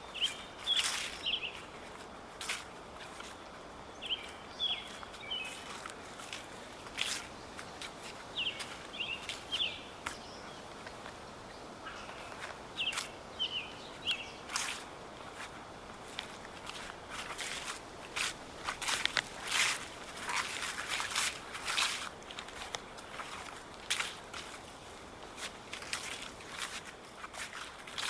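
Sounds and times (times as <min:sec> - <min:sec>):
footsteps on dry leaves: 0:00.0 - 0:28.0
small bird chirping: 0:00.1 - 0:01.7, 0:03.9 - 0:05.9, 0:07.0 - 0:14.8.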